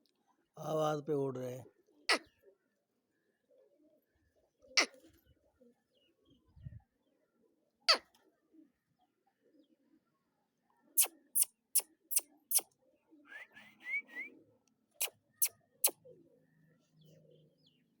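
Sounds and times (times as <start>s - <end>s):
faint pigeon cooing: 1.6s - 18.0s
sharp bird calls: 11.0s - 12.7s.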